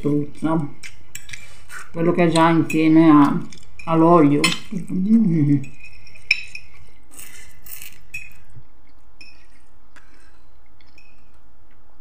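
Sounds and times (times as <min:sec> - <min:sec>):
low steady hum: 0:00.0 - 0:12.0
wet chewing and mouth sounds: 0:04.6 - 0:12.0.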